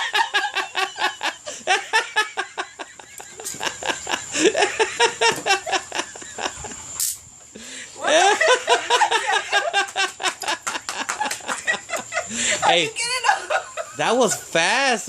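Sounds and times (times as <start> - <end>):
people laughing: 0.0 - 6.9, 7.6 - 14.7
hiss-like noise burst: 2.8 - 8.0.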